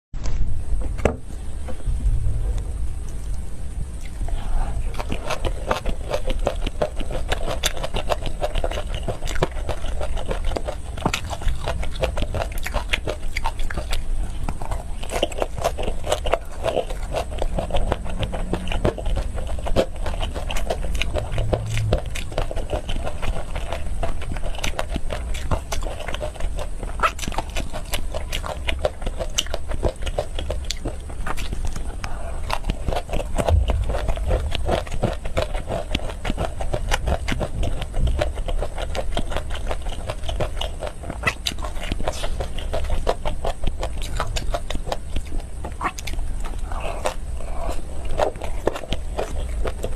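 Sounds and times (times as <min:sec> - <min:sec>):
food being bitten and chewed: 0:00.2 - 0:49.9.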